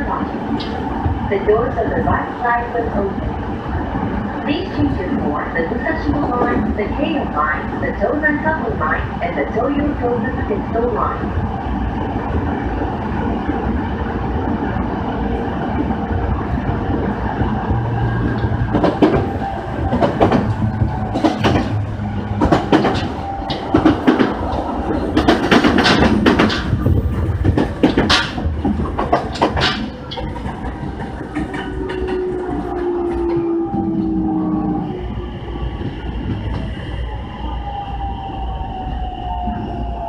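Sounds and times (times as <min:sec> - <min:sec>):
train running rumble: 0:00.0 - 0:40.0
wheels clacking over rail joints: 0:18.2 - 0:34.1.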